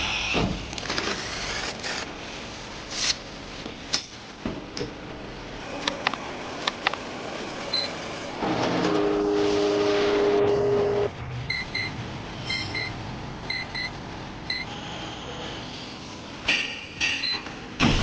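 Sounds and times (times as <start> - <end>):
machine hum: 5.0 - 16.2.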